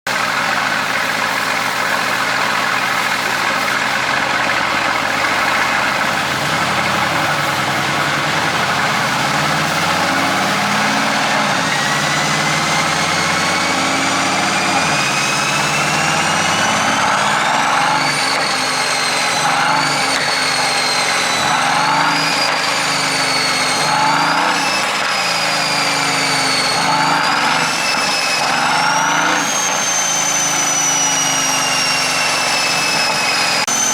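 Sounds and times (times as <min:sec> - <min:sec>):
exhaust crackles: 0:00.1 - 0:20.6
high engine whine: 0:00.1 - 0:33.9
car engine revving: 0:00.4 - 0:33.9.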